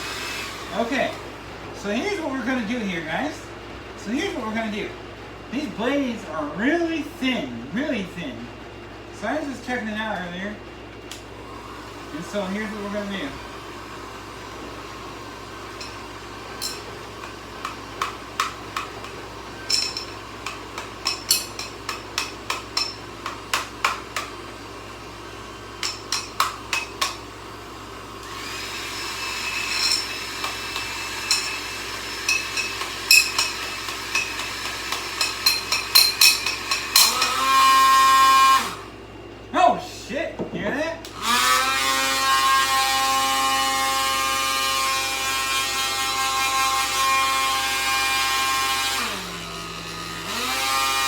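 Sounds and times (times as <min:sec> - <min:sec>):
high motor whine: 0:11.2 - 0:39.1
tool clicking and tapping: 0:15.8 - 0:16.0, 0:16.6 - 0:24.4, 0:25.8 - 0:27.2, 0:29.7 - 0:37.4.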